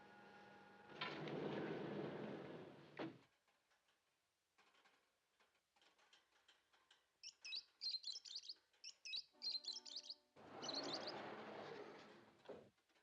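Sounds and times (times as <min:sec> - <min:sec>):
lovebirds chirping: 0:07.2 - 0:11.2.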